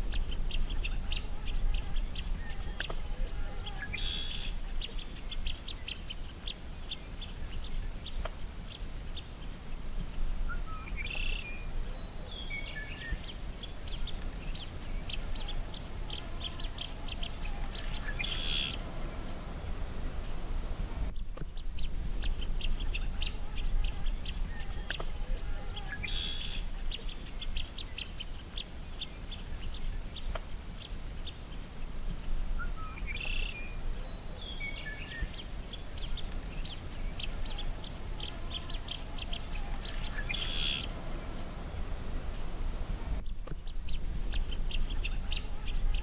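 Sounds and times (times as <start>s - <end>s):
birds chirping: 0.0s - 46.0s
harsh bird call: 0.5s - 5.2s, 15.0s - 20.7s, 36.0s - 43.2s
steady low rumble: 35.2s - 46.0s.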